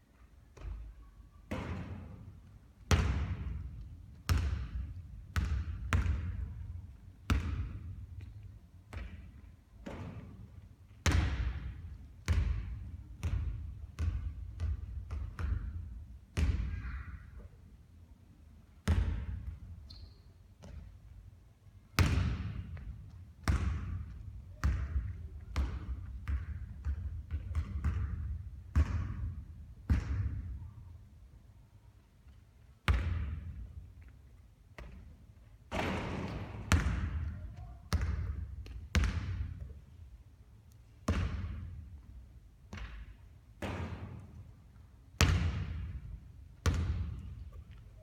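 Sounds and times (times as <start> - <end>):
basketballs bouncing on court: 0.6 - 2.3, 2.9 - 10.4, 11.0 - 17.2, 18.8 - 19.7, 20.6 - 21.1, 22.0 - 30.7, 32.9 - 33.8, 34.8 - 39.9, 41.0 - 42.1, 42.7 - 44.5, 45.2 - 47.6.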